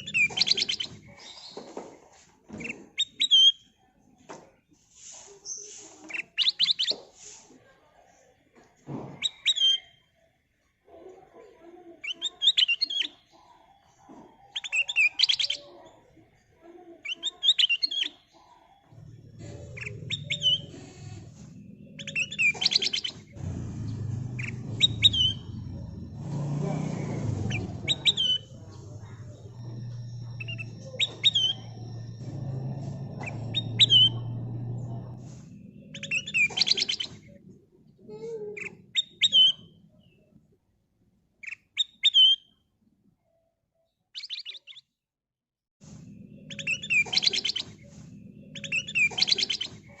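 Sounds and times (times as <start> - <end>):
bird whistling calls: 19.0 - 37.2, 46.4 - 50.0
low rumble: 23.2 - 37.4.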